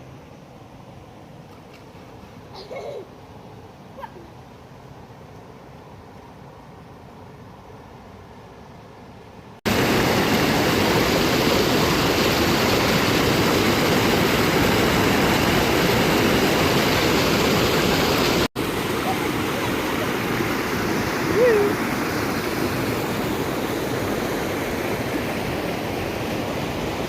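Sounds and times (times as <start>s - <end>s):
waterfall rushing: 9.7s - 27.0s.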